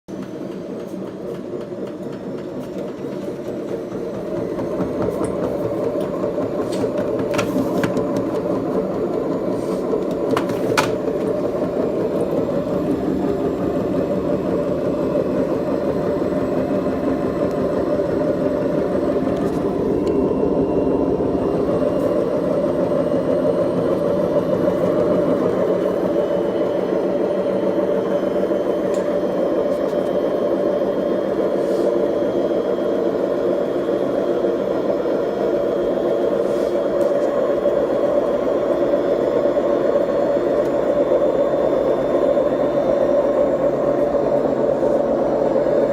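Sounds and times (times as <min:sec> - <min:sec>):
washing machine drum rumbling: 0:00.2 - 0:31.0.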